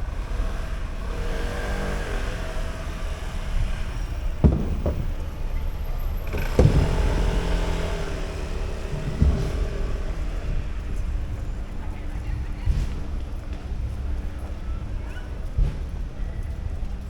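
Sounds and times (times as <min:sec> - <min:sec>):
cars passing: 0:00.0 - 0:17.0
sharp knocks: 0:04.4 - 0:05.3, 0:06.3 - 0:10.6.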